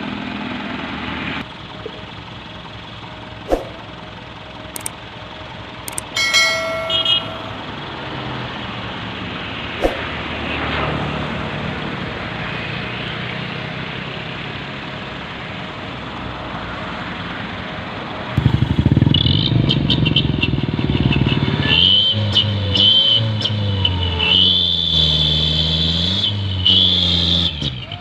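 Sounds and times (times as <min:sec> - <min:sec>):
high whine: 0:05.9 - 0:08.0
diesel truck engine revving: 0:16.9 - 0:27.9.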